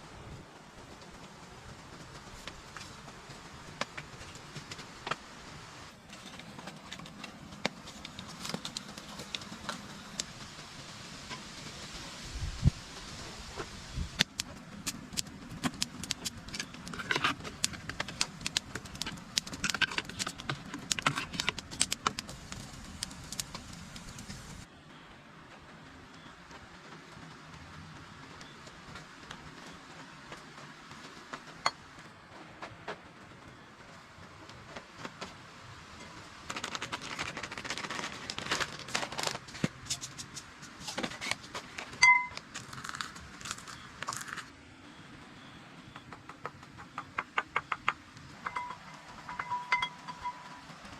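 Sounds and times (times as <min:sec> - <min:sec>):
low background noise: 0:00.0 - 0:50.9
clicks crackles and scrapes: 0:02.1 - 0:10.4, 0:13.6 - 0:24.7, 0:36.0 - 0:44.6
sharp clicks and taps: 0:14.2 - 0:23.6
clear ringing tone: 0:48.5 - 0:50.6.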